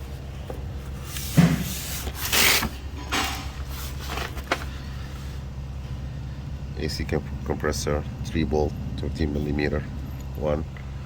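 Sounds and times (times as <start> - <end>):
knocks and scrapes of handling: 0.0 - 4.7
steady low hum: 0.0 - 11.0.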